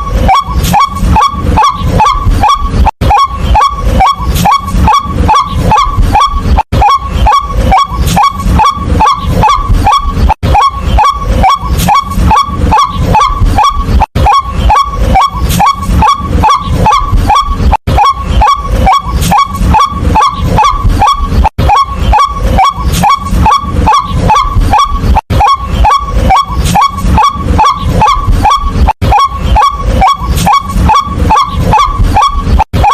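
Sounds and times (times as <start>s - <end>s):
bird calling harsh rising notes: 0.0s - 32.9s.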